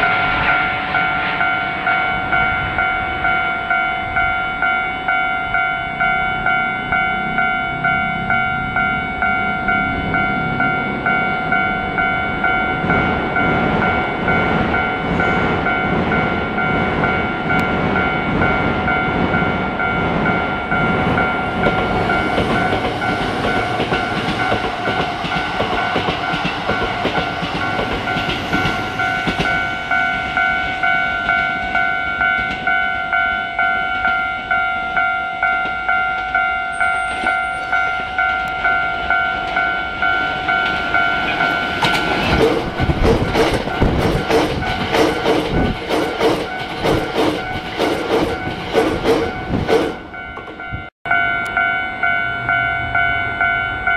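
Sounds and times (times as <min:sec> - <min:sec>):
level-crossing alarm bell ringing: 0:00.0 - 0:53.9
train wheels rumbling and clattering: 0:07.4 - 0:32.8, 0:37.2 - 0:50.9.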